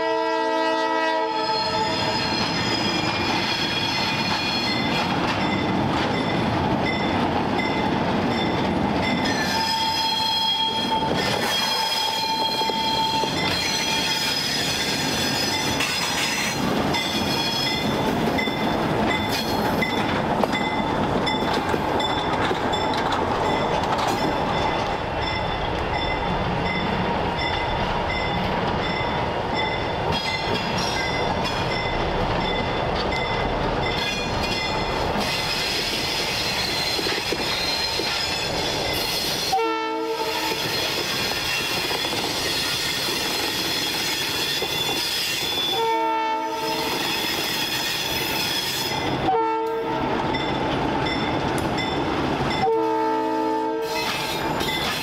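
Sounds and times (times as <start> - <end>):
train horn blasts: 0.0 - 2.4, 9.4 - 14.5, 39.5 - 40.8, 44.8 - 47.0, 49.2 - 50.1, 52.6 - 54.4
locomotive engine and rail rumble: 0.0 - 55.0
high wheel squeal: 1.4 - 5.1, 9.2 - 18.0, 34.0 - 39.6, 40.4 - 45.8, 46.7 - 49.2.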